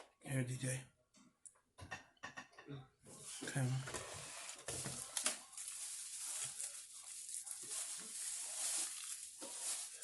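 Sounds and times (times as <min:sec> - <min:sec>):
paper bags rustling: 0:03.2 - 0:10.0.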